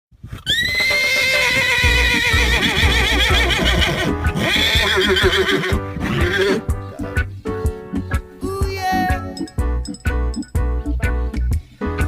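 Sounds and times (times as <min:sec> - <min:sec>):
horse whinnying: 0:00.3 - 0:06.7
music with low beat: 0:01.8 - 0:12.0.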